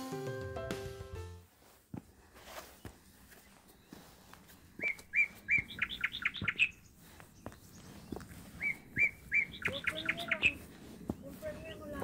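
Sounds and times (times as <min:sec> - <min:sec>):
footsteps on stony trail: 0:01.4 - 0:12.0
songbird singing: 0:02.6 - 0:12.0.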